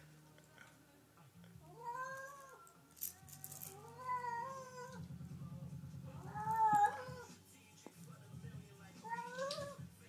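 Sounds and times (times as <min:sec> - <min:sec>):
cat meowing: 0:01.7 - 0:02.6, 0:03.7 - 0:05.1, 0:06.2 - 0:07.3, 0:09.0 - 0:09.8.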